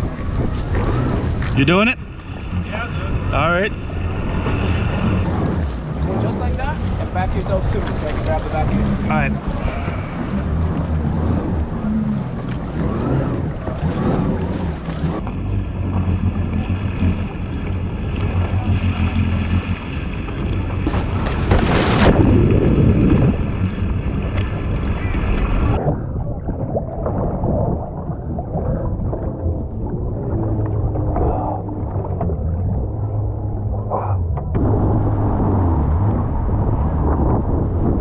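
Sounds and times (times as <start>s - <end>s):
water around hull: 0.0s - 38.0s
wind buffeting microphone: 0.0s - 38.0s
jet ski engine idling: 5.2s - 21.3s.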